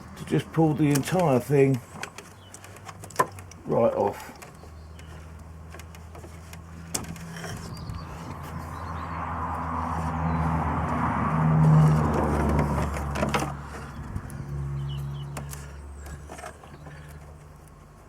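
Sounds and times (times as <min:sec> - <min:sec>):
light clicks and knocks: 0:00.7 - 0:07.9
vehicle passing by: 0:06.6 - 0:17.4.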